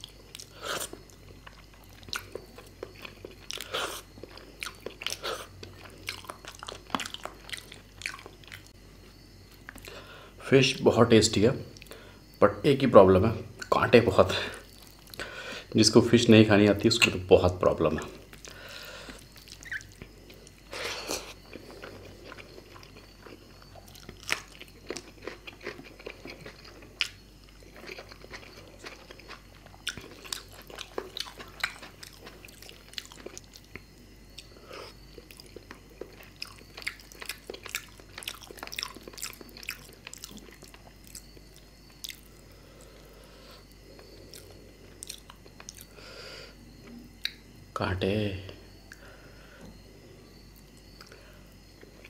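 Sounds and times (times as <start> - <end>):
chewing with wet mouth clicks: 0.0 - 8.8, 18.3 - 43.0, 43.6 - 46.0, 46.8 - 47.4.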